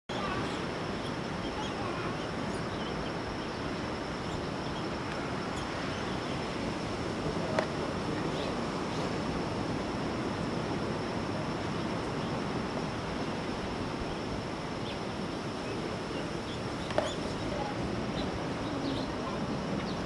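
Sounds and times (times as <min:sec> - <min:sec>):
ocean surf washing: 0:00.1 - 0:20.0
bird chirps: 0:14.8 - 0:17.5.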